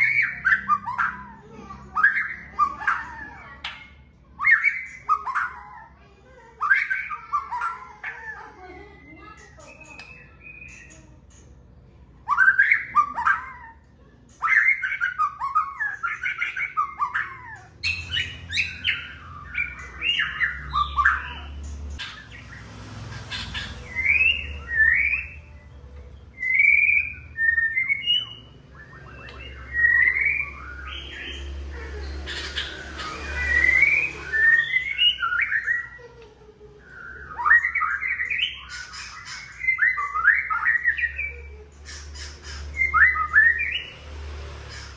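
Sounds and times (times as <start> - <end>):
bird singing whistled notes: 0.0 - 5.9, 9.1 - 11.1, 12.3 - 13.8, 14.4 - 22.7, 23.3 - 31.6, 32.3 - 36.0, 36.9 - 41.4, 42.8 - 44.0.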